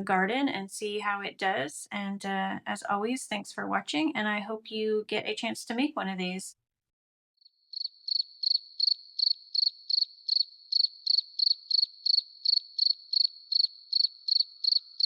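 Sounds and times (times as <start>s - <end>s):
cricket chirping: 7.7s - 15.0s.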